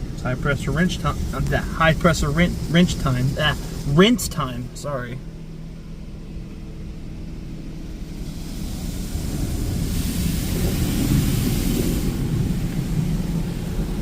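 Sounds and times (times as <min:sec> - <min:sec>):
water spray drumming on car: 0:00.0 - 0:04.4, 0:07.9 - 0:14.0
steady low hum: 0:00.0 - 0:14.0.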